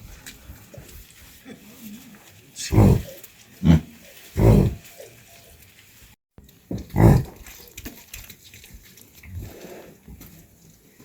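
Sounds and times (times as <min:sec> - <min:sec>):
animal calling roughly: 0:02.6 - 0:04.9.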